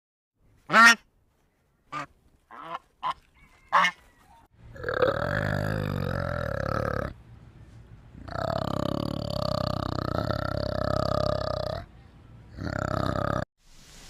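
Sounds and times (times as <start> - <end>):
geese honking: 1.9 - 4.5
orangutan guttural call: 4.6 - 7.2, 8.2 - 11.9, 12.5 - 13.4.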